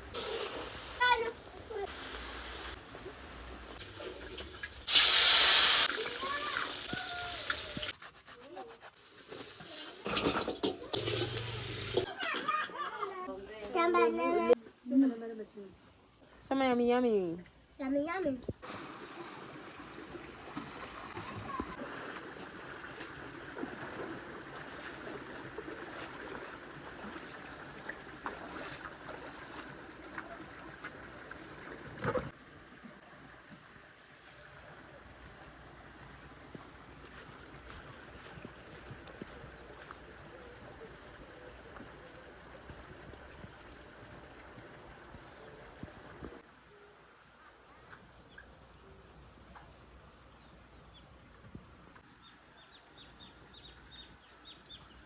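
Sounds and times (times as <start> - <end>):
insects trilling: 32.0 - 42.7.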